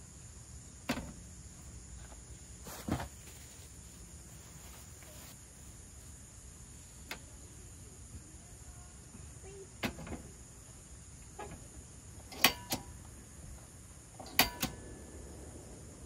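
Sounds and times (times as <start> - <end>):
faint steady hiss: 0.0 - 16.0
sharp clicks and knocks: 12.3 - 12.9, 14.2 - 14.8.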